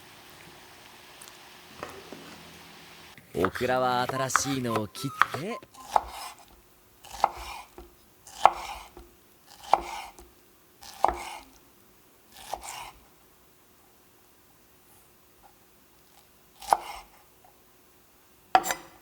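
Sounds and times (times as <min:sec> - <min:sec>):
knife slicing on cutting board: 0:03.4 - 0:06.5, 0:07.1 - 0:10.2, 0:10.8 - 0:11.5, 0:18.6 - 0:18.9.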